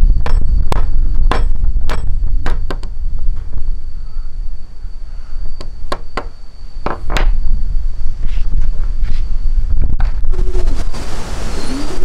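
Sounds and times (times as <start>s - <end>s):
low rumble: 0.0s - 11.2s
sharp knocks: 0.2s - 3.0s, 5.6s - 7.4s.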